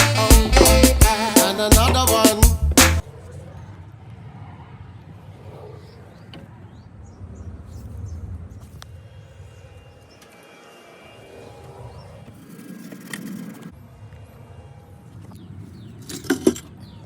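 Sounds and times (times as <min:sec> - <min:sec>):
music: 0:00.0 - 0:03.0
distant traffic rumble: 0:00.1 - 0:10.4.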